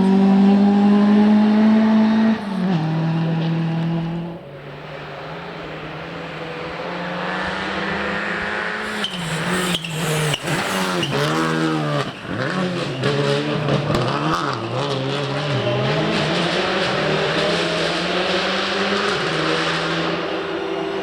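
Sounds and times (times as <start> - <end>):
rally car engine revving: 0.0 - 21.0
exhaust cracks: 8.8 - 14.2.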